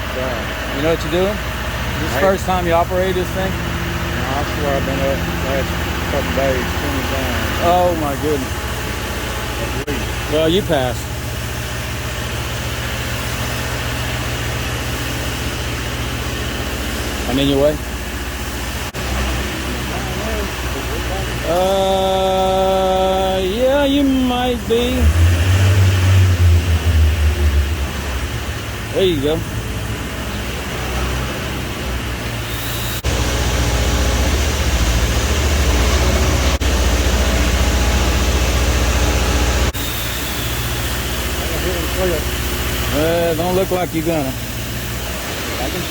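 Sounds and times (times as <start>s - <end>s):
boom lift engine running: 0.0s - 45.9s.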